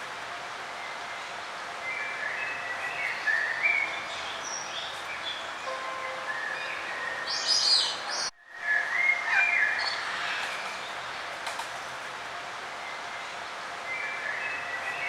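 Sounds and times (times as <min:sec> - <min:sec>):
outdoor ambience hiss: 0:00.0 - 0:15.0
songbirds chirping and singing: 0:01.8 - 0:10.2.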